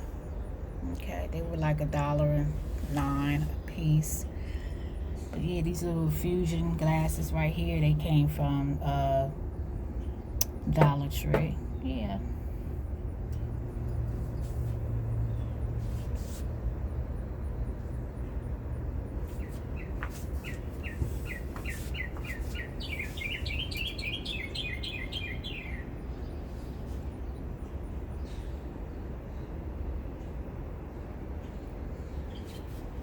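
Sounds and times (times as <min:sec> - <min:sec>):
low background rumble: 0:00.0 - 0:33.0
songbird trilling: 0:19.4 - 0:25.8.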